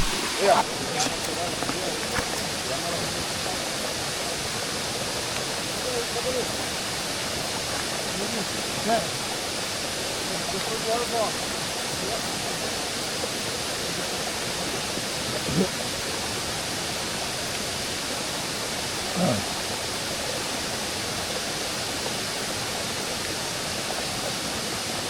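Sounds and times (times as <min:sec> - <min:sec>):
rushing water: 0:00.0 - 0:25.0.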